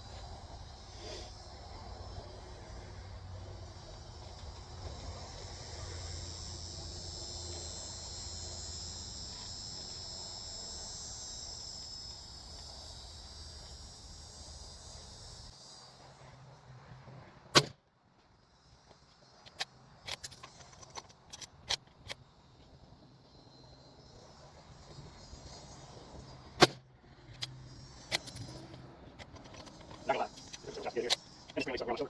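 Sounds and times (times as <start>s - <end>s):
insects buzzing: 0.0s - 17.2s, 18.3s - 32.0s.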